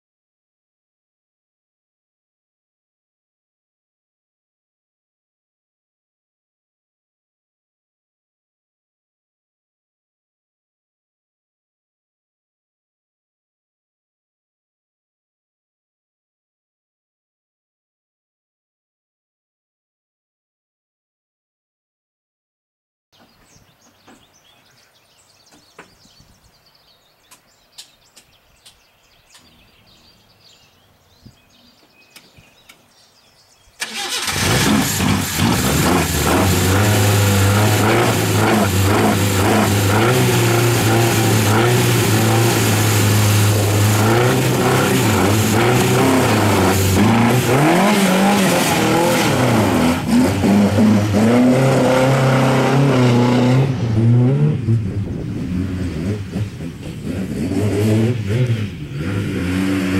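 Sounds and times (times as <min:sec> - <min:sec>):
car engine starting and revving: 0:33.8 - 0:59.9.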